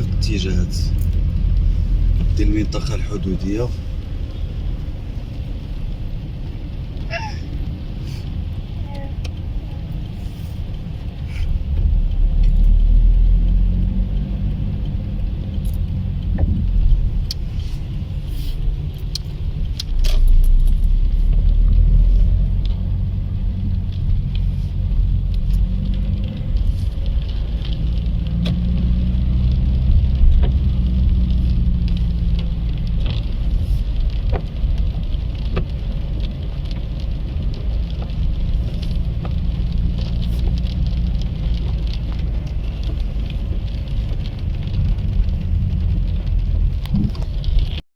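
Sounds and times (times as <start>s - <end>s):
car engine accelerating: 8.6s - 33.2s.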